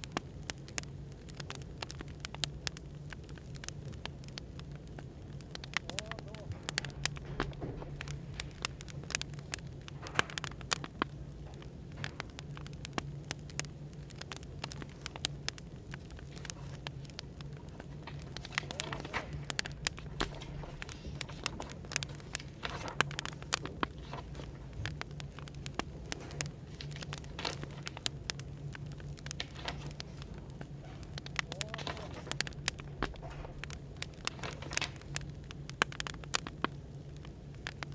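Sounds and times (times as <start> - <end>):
cafe background hum: 0.0 - 37.9
wood fire crackling: 0.0 - 37.9.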